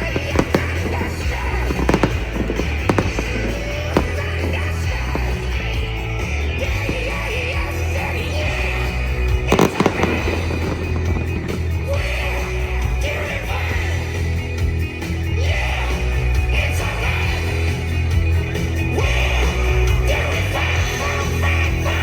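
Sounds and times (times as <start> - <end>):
firework bangs: 0.0 - 12.5
loud rock music with heavy bass: 0.0 - 22.0.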